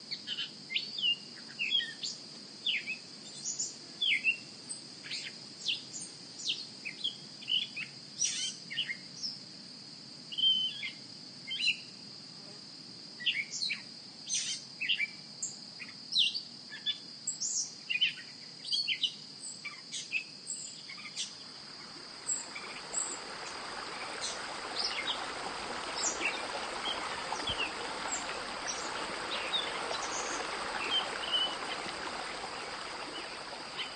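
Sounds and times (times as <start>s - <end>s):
high insect drone: 20.4s - 33.9s
birds chirping: 21.2s - 33.9s.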